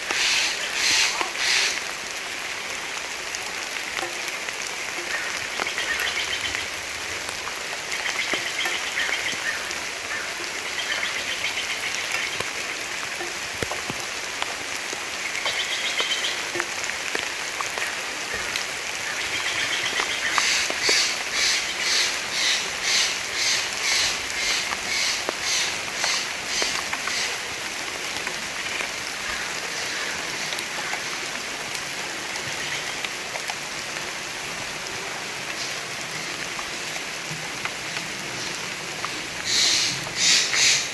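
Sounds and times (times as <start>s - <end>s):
rain falling in forest: 0.0s - 40.9s
birds calling: 0.1s - 1.8s, 19.0s - 27.4s, 38.4s - 40.9s.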